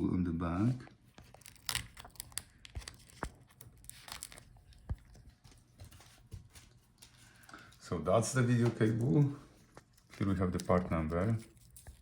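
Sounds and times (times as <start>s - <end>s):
cable connector crackling and clicking: 1.2s - 5.3s.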